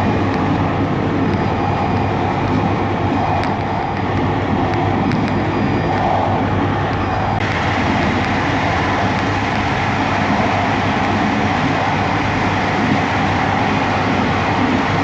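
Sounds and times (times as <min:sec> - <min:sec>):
train wheels rumbling on rails: 0:00.0 - 0:15.0
faint clicks: 0:01.2 - 0:06.1.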